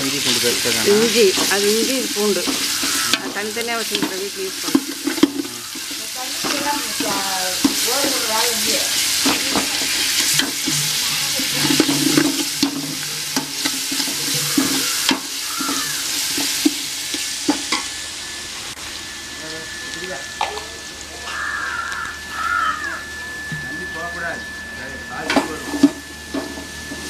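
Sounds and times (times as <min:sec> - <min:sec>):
paste sizzling in hot oil: 0:00.0 - 0:27.0
metal ladle scraping a pot: 0:01.0 - 0:08.3, 0:09.0 - 0:17.9.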